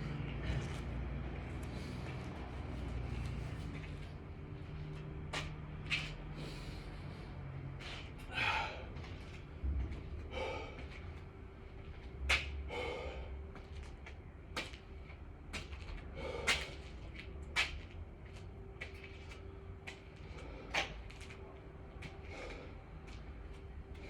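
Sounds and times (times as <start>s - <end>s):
person breathing hard: 6.2s - 11.6s, 12.5s - 13.8s, 16.1s - 17.0s, 22.1s - 24.0s.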